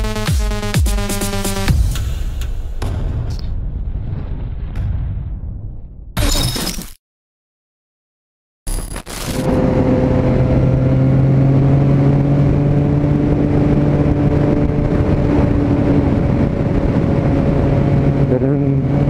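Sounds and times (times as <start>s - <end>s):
wind and road noise: 9.3s - 19.0s
motorcycle engine cruising: 9.4s - 19.0s.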